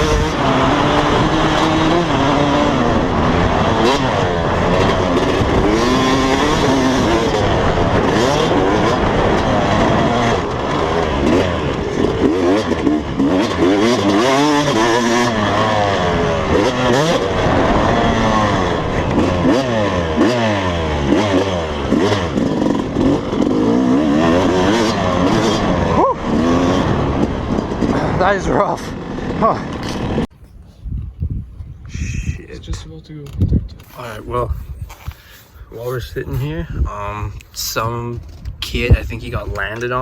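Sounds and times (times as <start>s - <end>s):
motocross bike engines revving: 0.0s - 30.3s, 33.8s - 40.0s.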